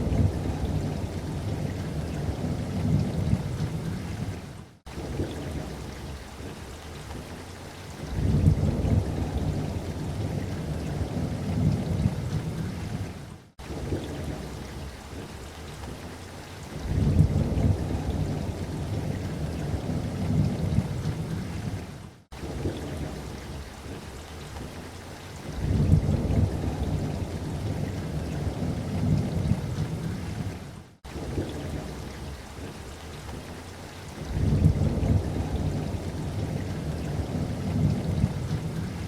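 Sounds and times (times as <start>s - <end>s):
rolling thunder: 0.0s - 5.8s, 8.1s - 14.9s, 16.8s - 21.8s, 25.6s - 32.7s, 34.2s - 39.0s
light rain: 0.0s - 39.0s.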